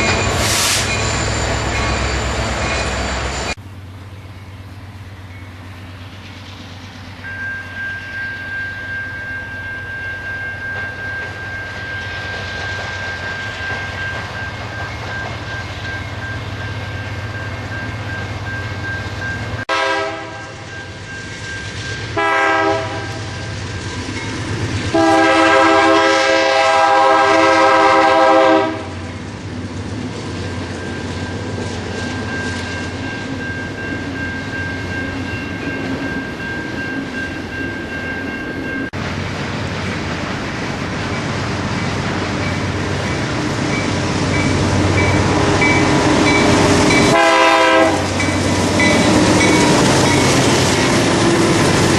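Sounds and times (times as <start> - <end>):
train running: 0.0 - 51.9
locomotive air horn blasts: 19.7 - 20.6, 22.2 - 23.3, 24.9 - 29.0, 47.0 - 48.2.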